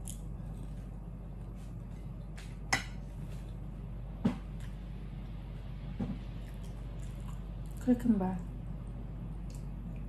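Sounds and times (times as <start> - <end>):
person chewing food: 0.0 - 2.4, 6.3 - 7.8
steady low hum: 0.0 - 10.0
wet eating sounds: 6.2 - 7.9.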